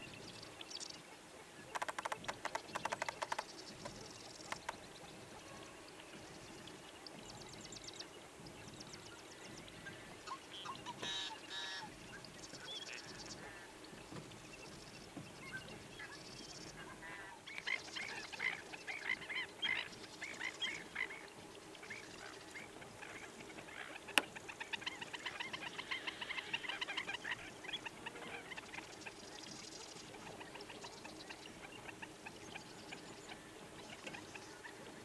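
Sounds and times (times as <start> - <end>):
marsh birds calling: 1.7 - 5.6
high bird trills: 10.9 - 11.9.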